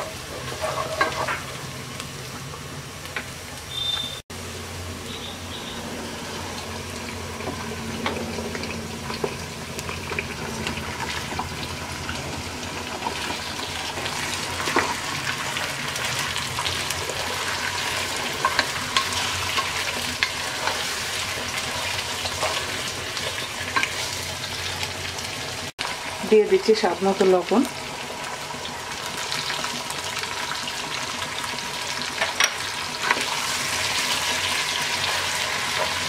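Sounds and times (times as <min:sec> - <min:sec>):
chicken sizzling in hot oil: 0:00.0 - 0:36.0.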